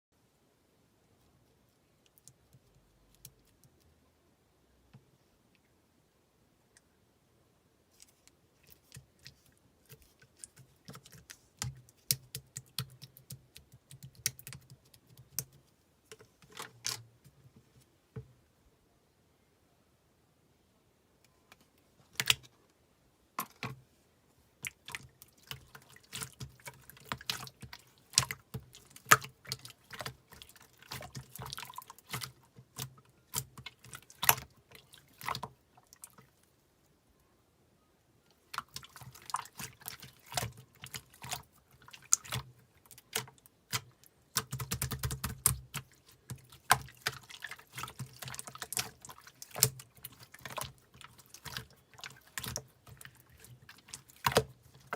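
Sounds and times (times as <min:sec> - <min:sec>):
slime squishing by hand: 0:08.0 - 0:17.1, 0:24.6 - 0:36.4, 0:38.3 - 0:54.9.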